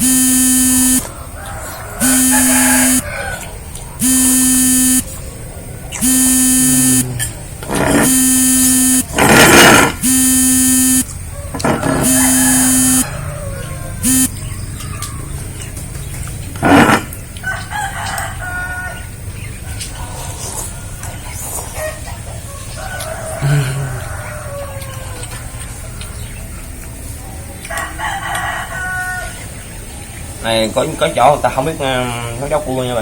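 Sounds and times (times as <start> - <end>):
buzzer-like horn blasts: 0.0 - 1.1, 2.0 - 3.1, 4.0 - 5.2, 6.0 - 13.3, 14.0 - 14.4, 16.6 - 17.1
short noisy bursts: 0.0 - 1.1, 2.0 - 3.2, 4.0 - 5.2, 6.0 - 13.2, 14.0 - 14.4, 16.6 - 17.2.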